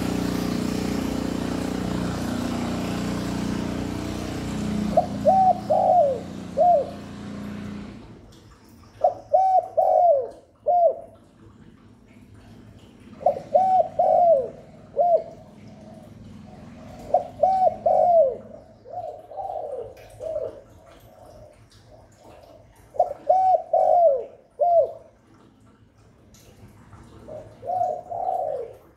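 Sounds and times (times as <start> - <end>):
dove cooing: 4.7 - 7.2, 8.9 - 11.4, 13.0 - 25.4, 27.0 - 28.9.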